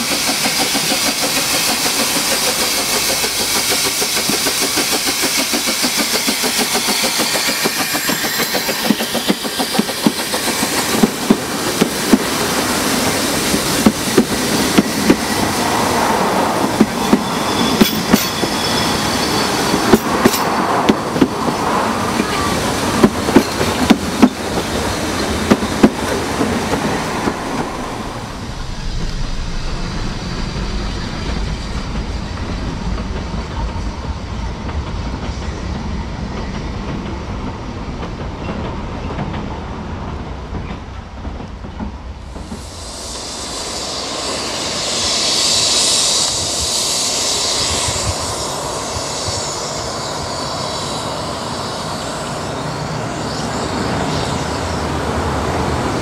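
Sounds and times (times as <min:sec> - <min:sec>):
train wheels clicking over rail joints: 0:00.0 - 0:28.0
hiss: 0:00.0 - 0:36.6, 0:42.0 - 0:56.0
low train rumble: 0:00.0 - 0:56.0.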